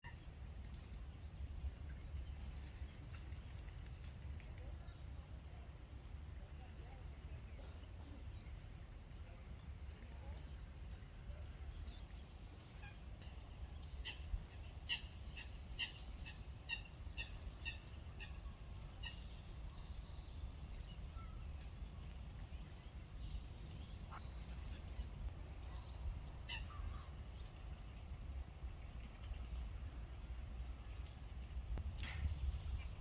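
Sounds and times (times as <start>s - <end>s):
low background rumble: 0.2s - 33.0s
sparrows chirping: 11.6s - 28.4s.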